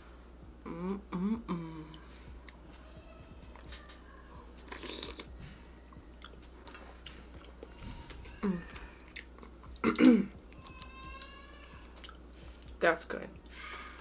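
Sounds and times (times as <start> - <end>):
wet chewing clicks: 12.0 - 12.8.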